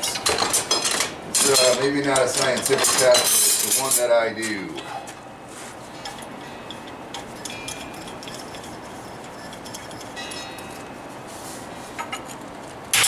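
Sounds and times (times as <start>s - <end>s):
light metallic clinks: 6.0s - 8.5s
short ringing tones: 10.1s - 11.1s.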